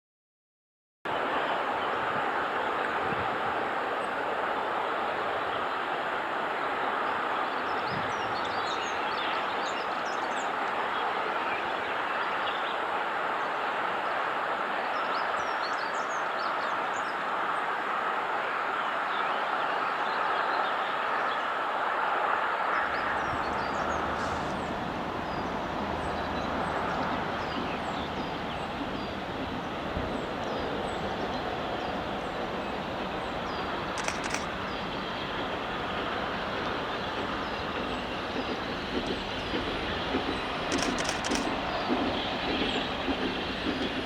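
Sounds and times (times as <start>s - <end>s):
steam locomotive rushing: 1.1s - 44.0s
birds chirping: 22.8s - 44.0s.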